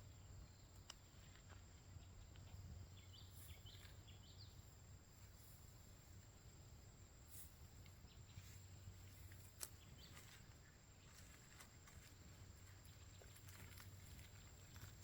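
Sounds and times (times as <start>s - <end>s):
small clicks and rustles: 7.8s - 15.0s.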